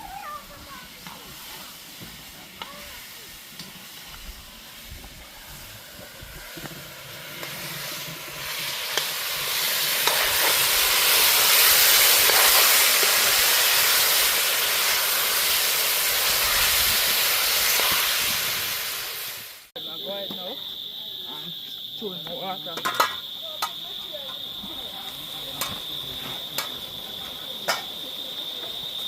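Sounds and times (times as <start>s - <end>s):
pot sizzling: 0.0s - 29.0s
steam hissing: 0.0s - 29.0s.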